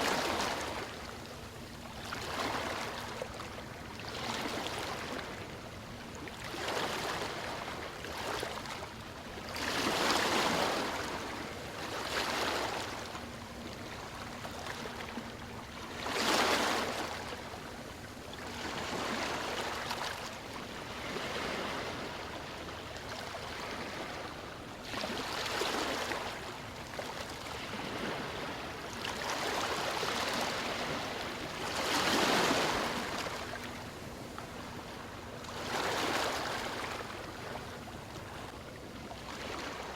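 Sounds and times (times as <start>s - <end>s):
ocean waves breaking: 23.2s - 38.5s.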